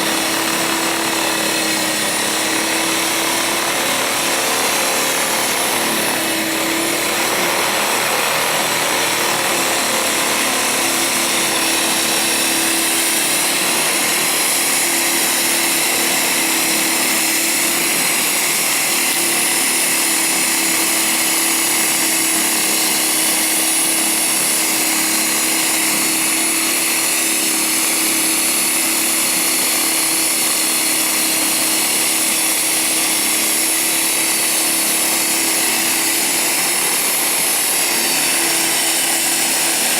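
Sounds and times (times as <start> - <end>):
electric snowblower running: 0.0 - 39.9.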